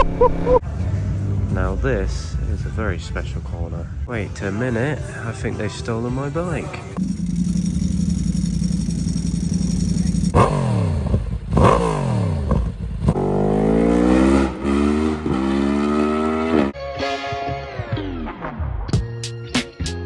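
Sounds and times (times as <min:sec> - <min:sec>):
motorcycle engine revving: 0:06.9 - 0:16.8
motorcycle accelerating with upshifts: 0:07.0 - 0:16.8.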